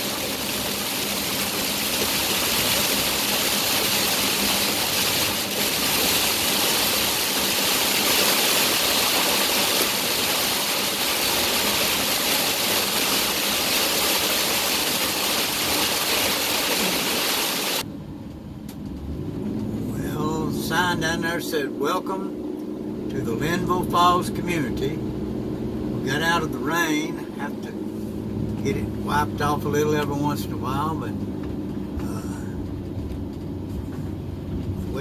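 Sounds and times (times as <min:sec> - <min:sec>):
tyres hissing on wet road: 0:00.0 - 0:17.8
heavy rain on a car: 0:00.0 - 0:17.9.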